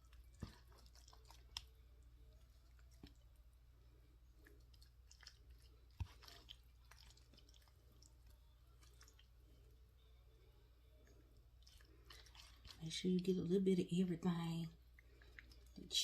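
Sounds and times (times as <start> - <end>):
utensil scooping casserole: 0.0 - 3.3, 4.3 - 9.6, 11.0 - 13.5.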